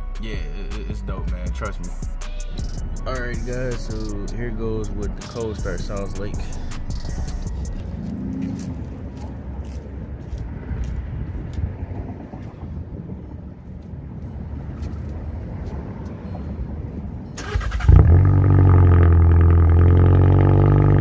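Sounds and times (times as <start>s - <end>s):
raspy exhaust drone: 0.0s - 13.0s, 17.8s - 21.0s
low rumble: 0.0s - 21.0s
car engine cranking and firing: 17.4s - 21.0s.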